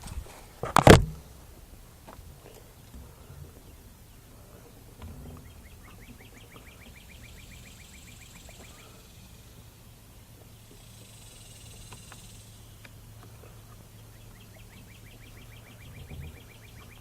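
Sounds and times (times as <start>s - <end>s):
faint bird trill: 2.4s - 17.0s.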